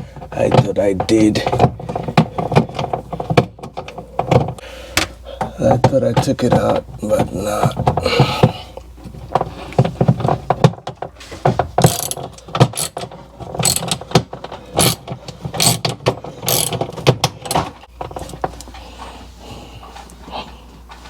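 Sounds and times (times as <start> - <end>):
hand tool clicking and scraping screw: 11.8 - 18.6.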